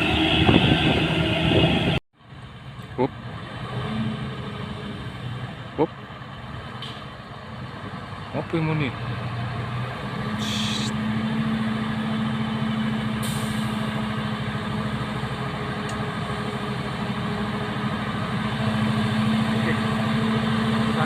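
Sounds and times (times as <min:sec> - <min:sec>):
diesel truck engine running: 0:00.0 - 0:21.0.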